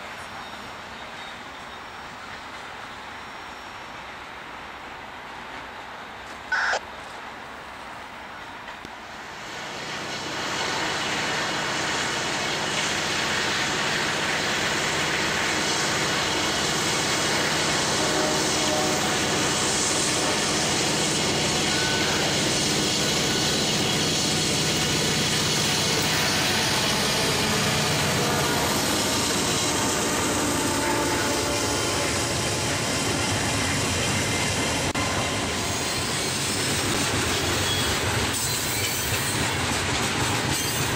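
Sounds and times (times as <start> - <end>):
diesel locomotive engine: 0.0 - 40.9
freight cars rumbling on rails: 8.7 - 40.9.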